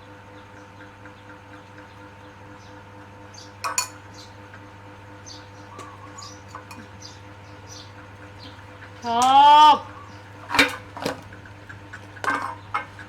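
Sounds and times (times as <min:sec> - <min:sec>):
spoon clinking against a dish: 0:03.6 - 0:04.0, 0:05.8 - 0:06.9.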